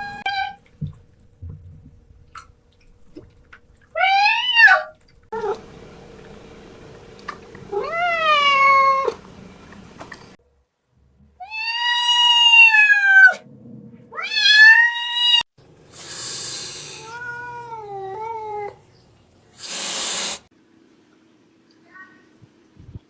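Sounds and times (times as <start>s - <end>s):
cat meowing: 4.0s - 5.6s, 7.7s - 9.2s, 11.4s - 13.4s, 14.1s - 15.4s, 16.9s - 18.8s
cat hissing: 14.2s - 18.7s, 19.6s - 20.5s.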